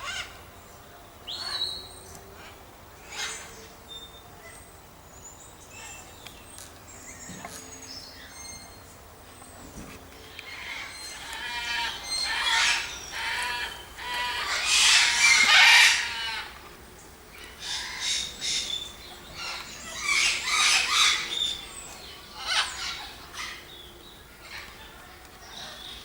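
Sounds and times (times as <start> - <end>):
birds calling loudly: 10.2 - 26.0.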